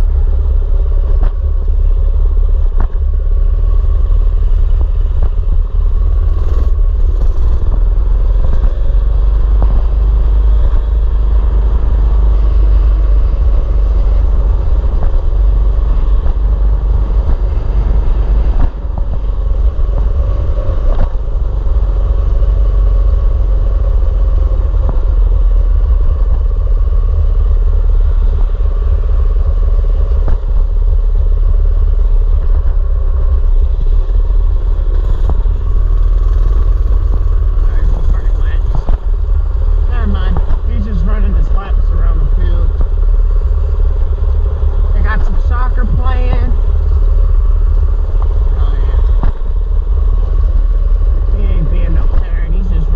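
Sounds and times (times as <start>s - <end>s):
wind rumble on microphone: 0.0s - 52.9s
small engine running: 34.4s - 39.2s.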